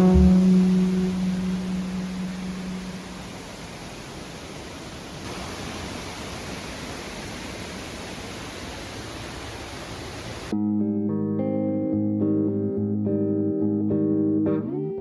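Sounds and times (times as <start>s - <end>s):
steady rushing noise: 0.0s - 10.5s.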